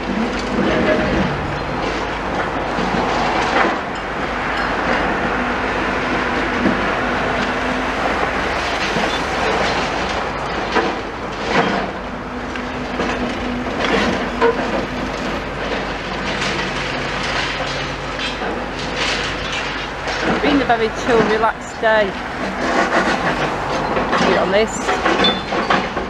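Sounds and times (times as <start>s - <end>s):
excavator engine running: 0.0s - 26.0s
masonry and metal crunching: 0.0s - 26.0s.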